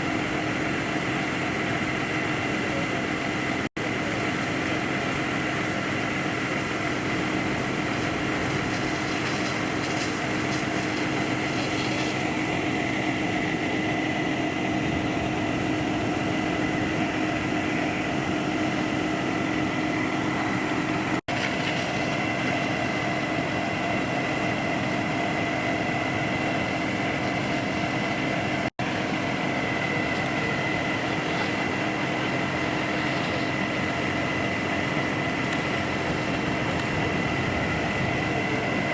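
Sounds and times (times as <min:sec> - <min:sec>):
high whine: 0:00.0 - 0:38.9
motor drone: 0:00.0 - 0:38.9.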